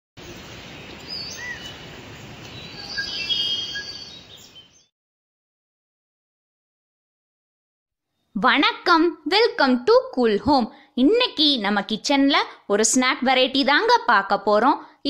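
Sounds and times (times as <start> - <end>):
birds chirping: 0.2 - 4.9.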